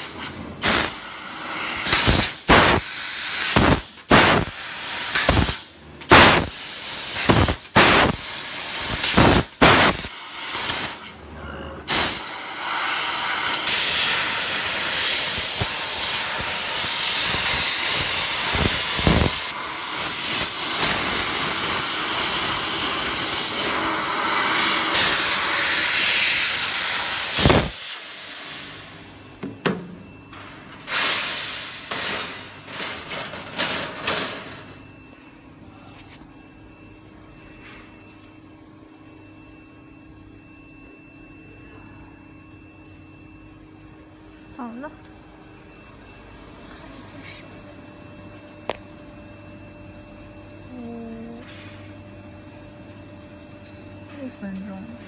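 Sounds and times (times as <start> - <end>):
gas hissing from laser head: 0.0 - 11.1, 11.9 - 29.0, 30.9 - 32.4.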